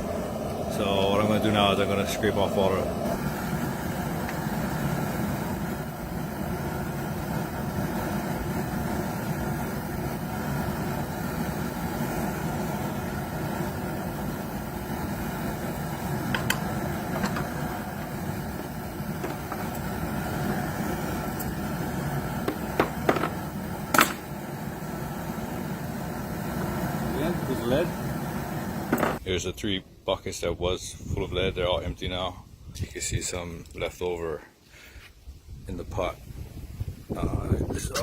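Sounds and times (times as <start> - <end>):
steady low rumble: 0.0 - 29.2.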